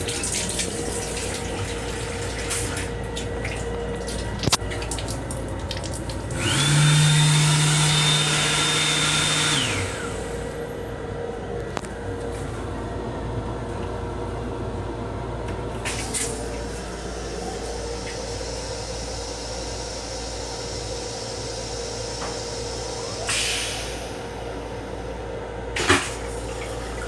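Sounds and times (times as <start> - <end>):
electric railcar rumble and hum: 9.6 - 27.0.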